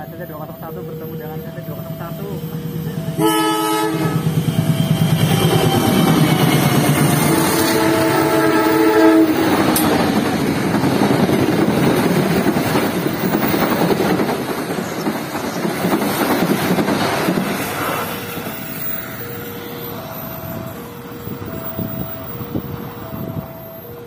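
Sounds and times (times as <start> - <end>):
diesel locomotive horn: 0.0 - 10.4, 17.6 - 24.0
two-tone level crossing warning: 0.0 - 15.8, 16.5 - 24.0
passenger trains passing: 0.0 - 24.0.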